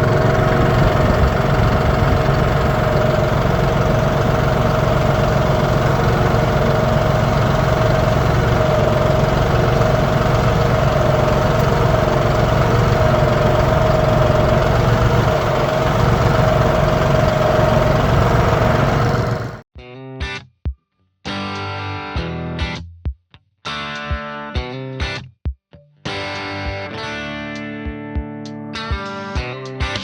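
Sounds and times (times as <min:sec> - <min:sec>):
engine idling: 0:00.0 - 0:19.6
guitar music: 0:26.1 - 0:29.6.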